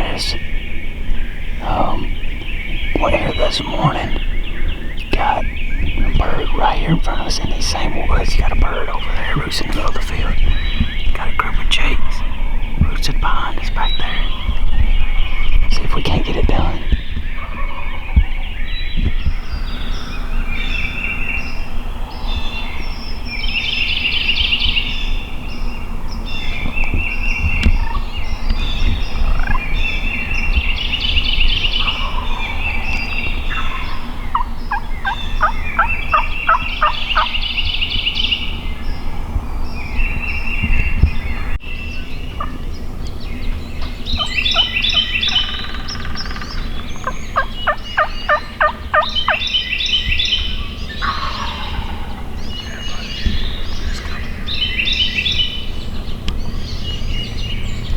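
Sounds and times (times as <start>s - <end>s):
wild turkeys gobbling: 1.6s - 14.5s, 27.8s - 37.4s, 44.2s - 49.5s, 51.0s - 53.2s.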